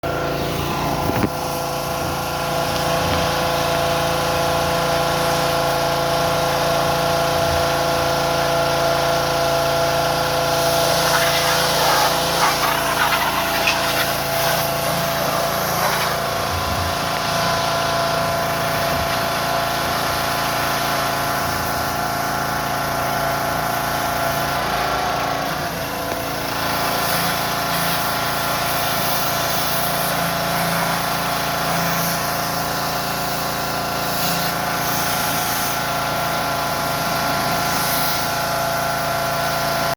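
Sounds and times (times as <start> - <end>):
diesel engine running: 0.0 - 39.9
hissing rush: 10.5 - 16.5.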